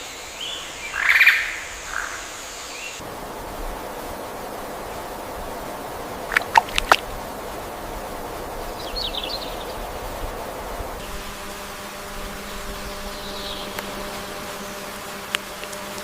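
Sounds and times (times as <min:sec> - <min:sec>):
steady hiss: 0:00.0 - 0:16.0
small birds calling: 0:08.6 - 0:09.9.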